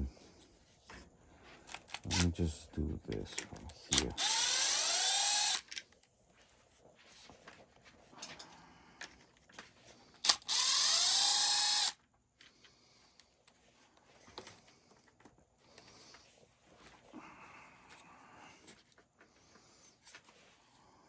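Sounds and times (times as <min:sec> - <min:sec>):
electric screwdriver whine: 0:01.7 - 0:02.3, 0:04.0 - 0:05.7, 0:10.2 - 0:12.0
small parts clicking: 0:01.7 - 0:02.3, 0:10.2 - 0:12.5.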